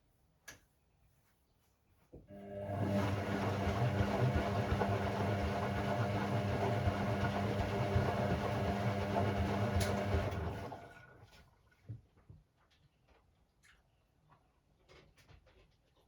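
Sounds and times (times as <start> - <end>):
washing machine motor churning: 2.3 - 11.4.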